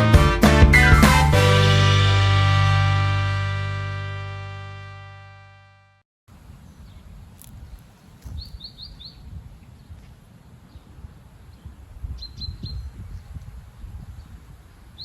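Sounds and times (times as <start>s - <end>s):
gusting wind buffeting microphone: 6.3s - 15.0s
small bird chirping: 6.7s - 10.1s, 11.5s - 13.4s.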